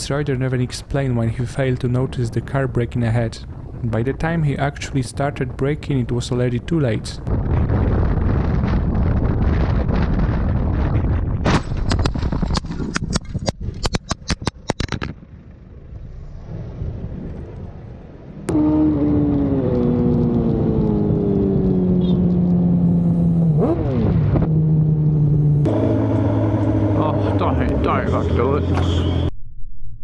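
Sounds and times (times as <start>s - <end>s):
vehicle noise: 0.0s - 29.4s
wind on microphone: 1.0s - 26.3s
engine tone falling in pitch: 15.2s - 29.4s.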